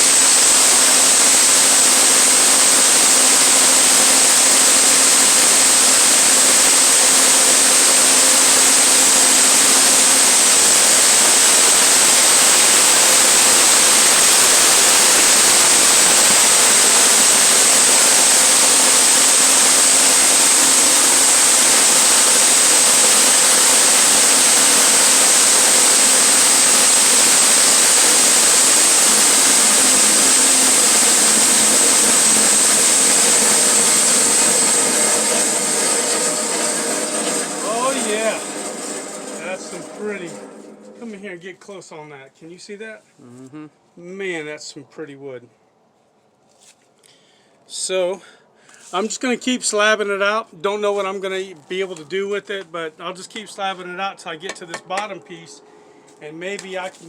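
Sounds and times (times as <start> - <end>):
sawmill blade whining: 0.0 - 41.6.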